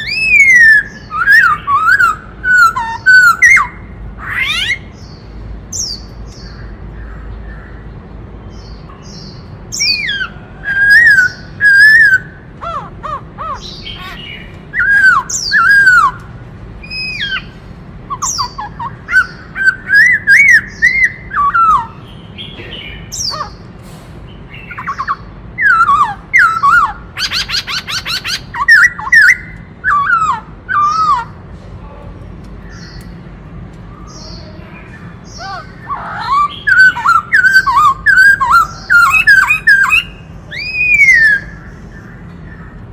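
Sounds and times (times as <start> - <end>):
bird singing whistled phrases: 0.0 - 4.8, 9.8 - 12.4, 13.5 - 16.2, 18.1 - 22.0, 24.6 - 31.3, 35.4 - 41.7.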